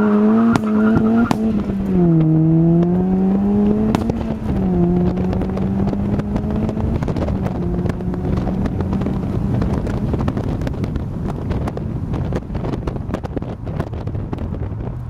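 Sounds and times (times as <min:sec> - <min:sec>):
car engine drone: 0:00.0 - 0:15.0
wind buffeting microphone: 0:00.0 - 0:15.0.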